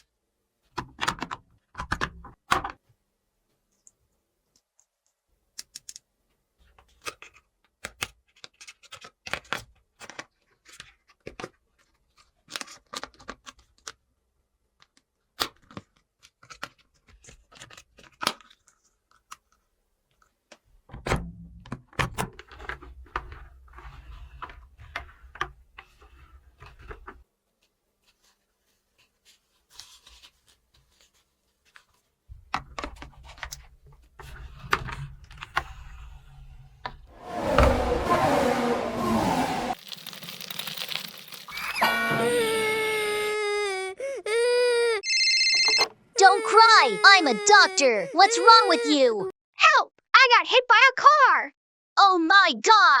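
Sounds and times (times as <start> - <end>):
packaging rubbing and crinkling: 39.7 - 41.8.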